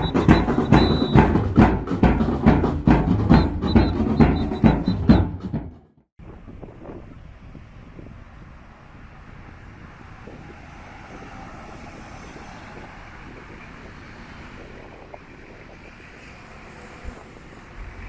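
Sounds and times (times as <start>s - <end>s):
steady outdoor hiss: 6.2s - 18.0s
wind buffeting microphone: 6.2s - 18.0s.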